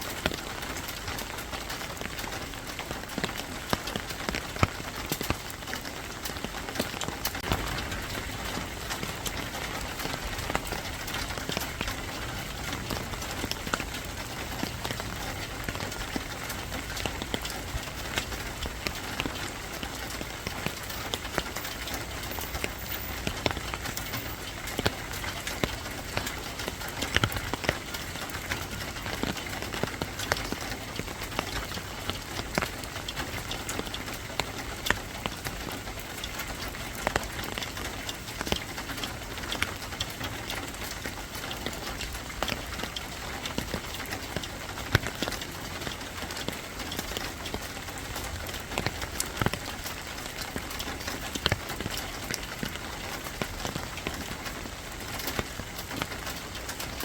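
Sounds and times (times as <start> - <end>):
rain falling: 0.0 - 57.0
raindrops ticking on a surface: 0.0 - 57.0.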